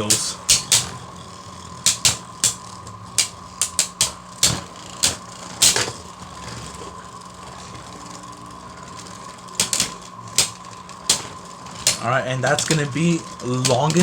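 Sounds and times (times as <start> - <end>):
spinning tops clacking together: 0.0 - 6.6, 8.8 - 14.0
spinning tops whirring: 0.0 - 14.0.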